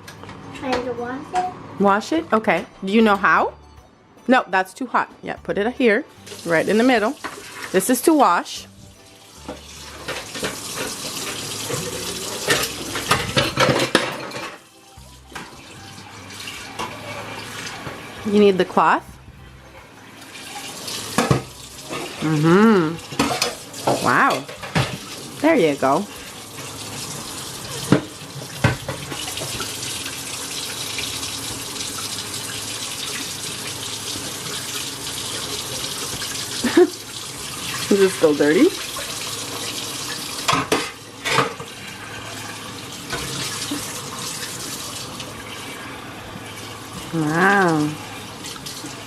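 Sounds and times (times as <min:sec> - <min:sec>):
tap water running into sink: 0:06.1 - 0:14.4, 0:15.0 - 0:18.9, 0:20.1 - 0:49.0
dishes splashing and knocking: 0:07.2 - 0:07.8, 0:09.4 - 0:14.7, 0:20.3 - 0:22.3, 0:23.0 - 0:25.4, 0:26.5 - 0:31.7, 0:34.1 - 0:42.4, 0:43.0 - 0:44.6.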